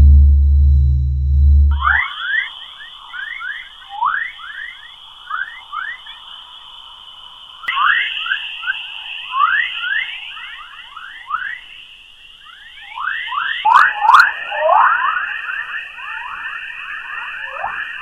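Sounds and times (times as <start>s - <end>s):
steady high tone: 0.0s - 2.8s.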